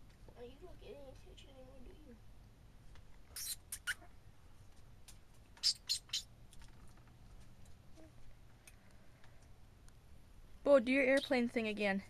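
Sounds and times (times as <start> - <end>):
bird chirping: 5.6 - 6.3.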